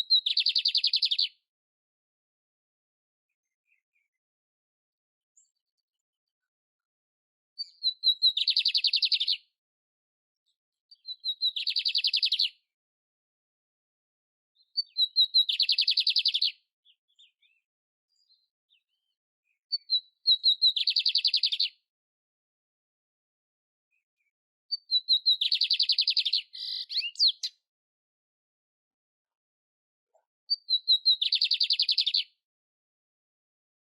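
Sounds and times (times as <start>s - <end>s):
canary singing trills: 0.1s - 1.4s, 7.6s - 9.4s, 11.0s - 12.6s, 14.6s - 17.6s, 19.7s - 21.8s, 24.7s - 27.6s, 30.5s - 32.3s.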